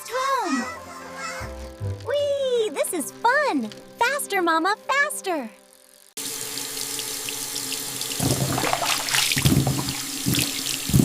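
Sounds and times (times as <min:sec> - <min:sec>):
water running from a tap: 0:06.2 - 0:11.0
water splashing in a sink: 0:06.2 - 0:11.0.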